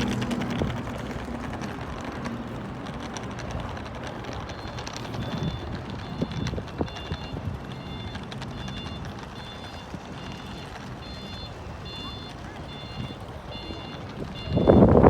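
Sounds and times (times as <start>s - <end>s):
crowd and city noise: 0.0s - 15.0s
wind on microphone: 2.8s - 12.0s, 12.6s - 15.0s.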